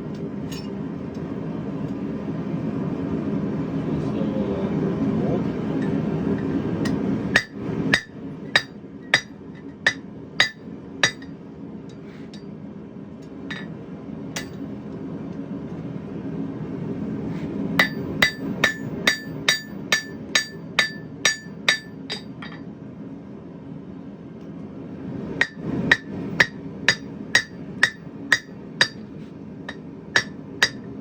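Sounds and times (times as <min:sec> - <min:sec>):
hammer striking hot steel on anvil: 0:05.8 - 0:11.4, 0:13.5 - 0:13.7, 0:14.4 - 0:14.7, 0:17.8 - 0:22.7, 0:25.4 - 0:31.0.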